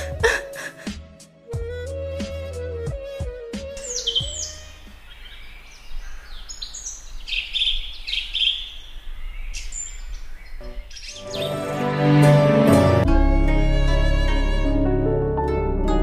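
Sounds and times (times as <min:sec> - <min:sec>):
birds chirping: 0:03.7 - 0:12.0.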